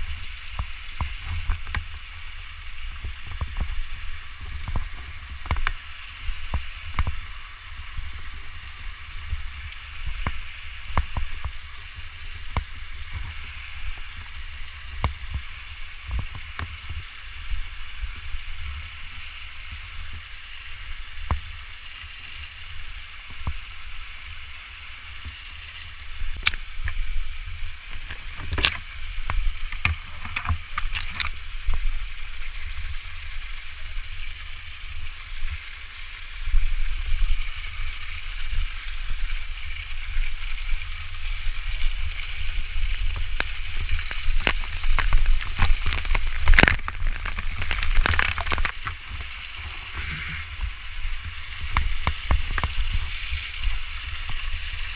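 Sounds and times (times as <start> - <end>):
sharp clicks and knocks: 27.8 - 31.3, 43.1 - 49.3.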